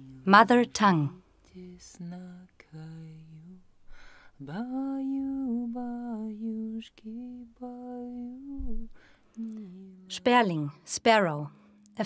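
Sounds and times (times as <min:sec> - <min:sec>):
woman singing unaccompanied: 0:00.0 - 0:01.2, 0:04.5 - 0:12.0
singer breathing: 0:03.8 - 0:04.4, 0:08.9 - 0:09.4.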